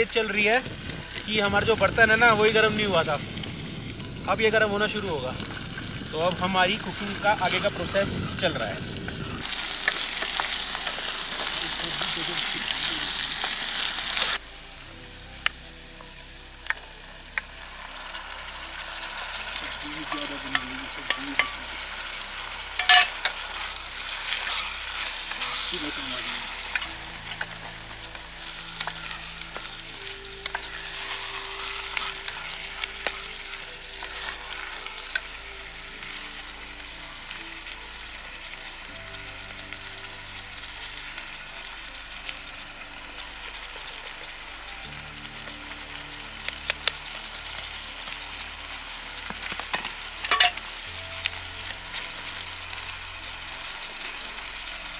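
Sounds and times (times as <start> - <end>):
vegetables sizzling in a pot: 0.0 - 54.9.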